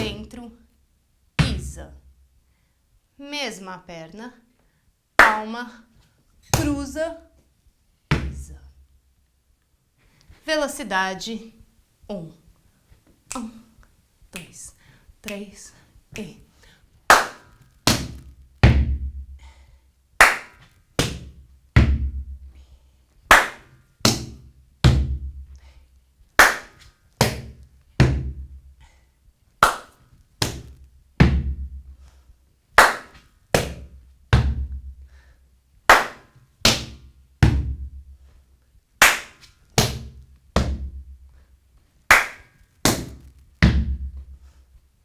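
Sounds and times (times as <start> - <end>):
hand clap: 5.2 - 5.5, 17.1 - 18.9, 20.2 - 22.0, 23.3 - 25.1, 26.4 - 28.3, 29.6 - 30.8, 32.8 - 34.6, 35.9 - 37.0, 39.0 - 41.0, 42.1 - 44.3.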